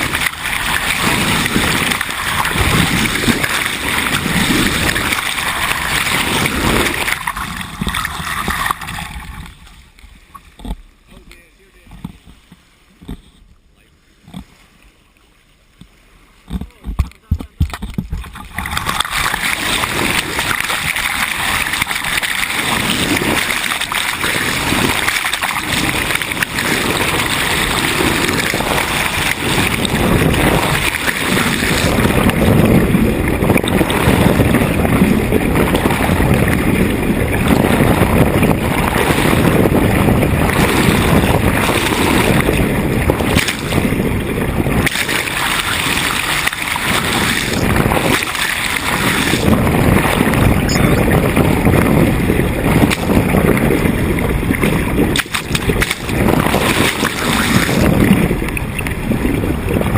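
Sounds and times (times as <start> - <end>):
wind buffeting microphone: 0.0 - 13.4, 15.8 - 59.9
water rushing along hull: 0.0 - 59.9.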